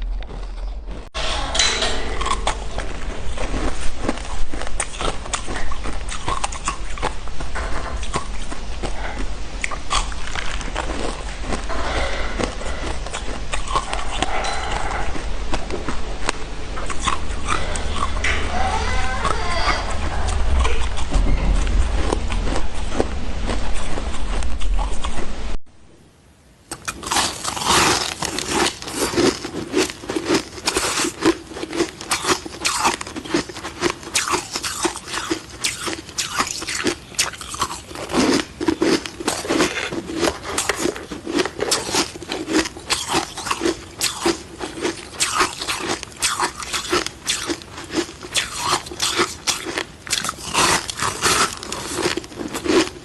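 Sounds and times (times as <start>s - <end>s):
person crunching ice: 26.8s - 53.0s.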